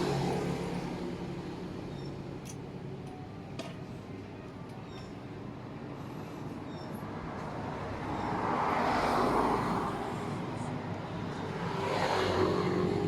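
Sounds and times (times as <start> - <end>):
road vehicle passing: 0.0 - 2.4, 6.4 - 13.0.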